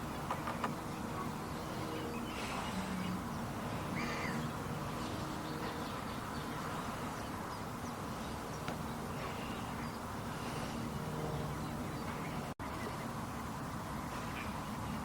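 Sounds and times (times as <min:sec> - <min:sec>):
wetland background hiss: 0:00.0 - 0:15.0
waterbird calls: 0:00.1 - 0:04.6.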